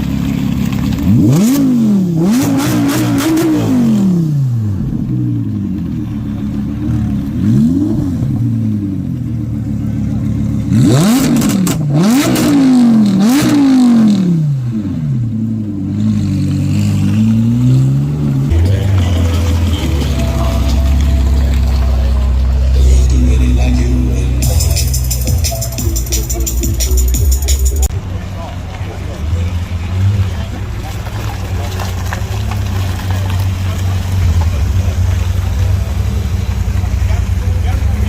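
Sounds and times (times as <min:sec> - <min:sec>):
car engine revving: 0:00.0 - 0:38.0
sharp crackles: 0:30.8 - 0:36.9.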